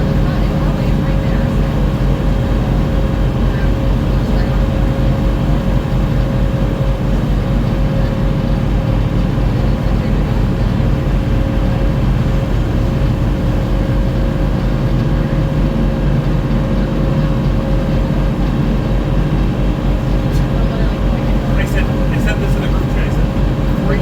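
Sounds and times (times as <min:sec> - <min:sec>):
boat engine low drone: 0:00.0 - 0:24.0.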